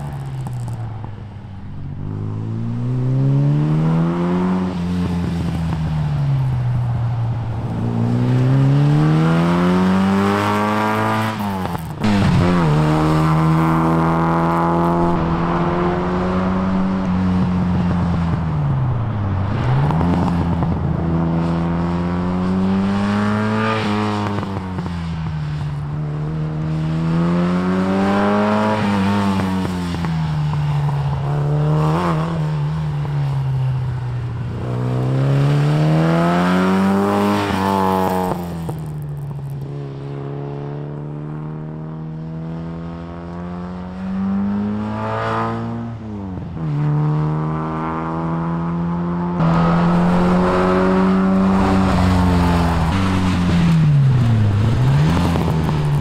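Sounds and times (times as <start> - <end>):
car engine revving: 1.7 - 24.8, 34.5 - 56.0.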